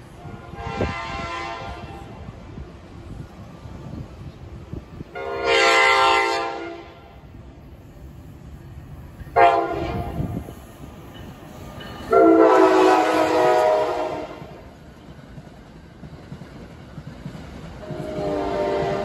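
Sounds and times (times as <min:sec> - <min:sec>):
low rumble of passing train: 0:00.0 - 0:19.0
train horn blasts: 0:00.2 - 0:02.2, 0:05.1 - 0:07.2, 0:09.4 - 0:10.4, 0:12.1 - 0:14.6, 0:17.8 - 0:19.0.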